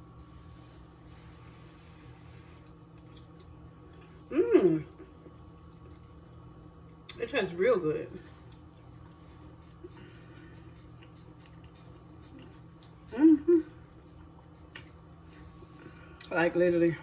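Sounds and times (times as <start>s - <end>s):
person chewing: 2.6s - 6.2s, 8.3s - 13.2s, 13.9s - 16.3s
person humming mm-mm: 4.3s - 5.0s, 13.1s - 13.8s.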